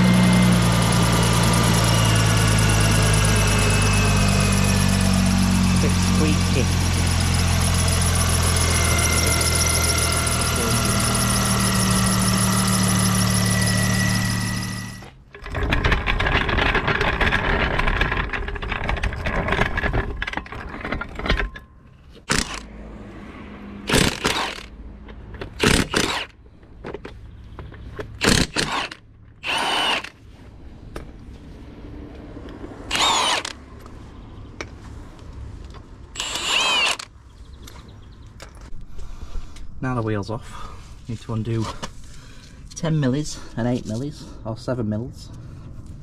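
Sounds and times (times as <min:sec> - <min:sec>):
car engine idling with whine: 0:00.0 - 0:15.2
impact wrench bursts: 0:00.0 - 0:15.6, 0:22.3 - 0:22.7, 0:23.8 - 0:24.7, 0:25.5 - 0:26.4, 0:28.2 - 0:30.2, 0:32.9 - 0:33.6, 0:36.2 - 0:37.1
clicking and rattling: 0:15.0 - 0:22.6.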